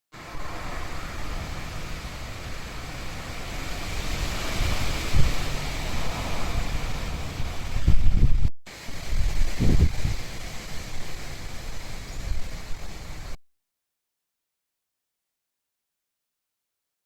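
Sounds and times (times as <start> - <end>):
steady outdoor rushing noise: 0.1 - 13.4
wind buffeting microphone: 0.2 - 13.4.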